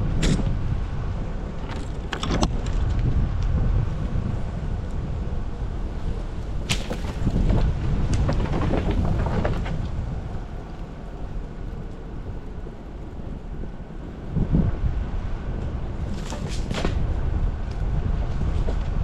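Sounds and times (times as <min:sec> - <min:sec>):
drivetrain and tyre rumble: 0:00.0 - 0:19.0
tyres cracking through ice: 0:06.6 - 0:10.5.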